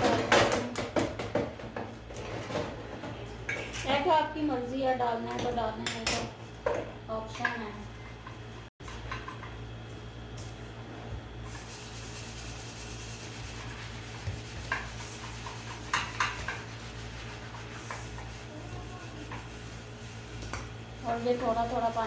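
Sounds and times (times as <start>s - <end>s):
steady low hum: 4.1s - 22.0s
dough mixing in a bowl: 7.2s - 22.0s.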